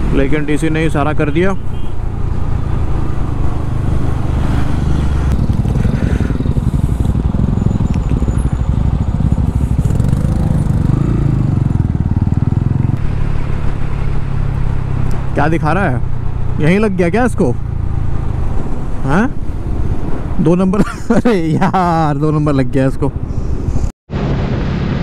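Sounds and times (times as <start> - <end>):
road and wind noise: 0.0 - 25.0
motorcycle engine running: 1.7 - 14.9.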